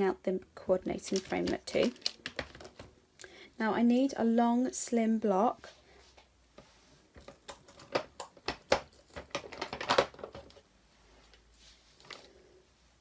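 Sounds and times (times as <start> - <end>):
acrylic blocks clicking and tapping: 1.0 - 2.9, 7.2 - 10.6.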